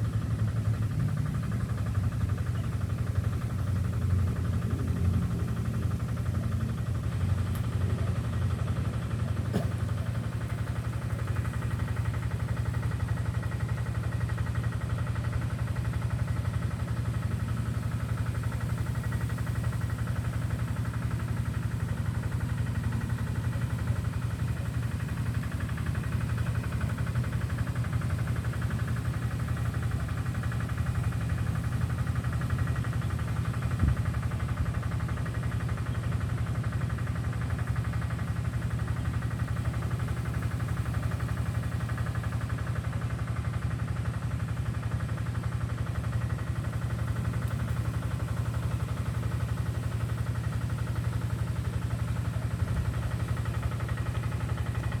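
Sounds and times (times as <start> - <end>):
engine idling: 0.0 - 55.0.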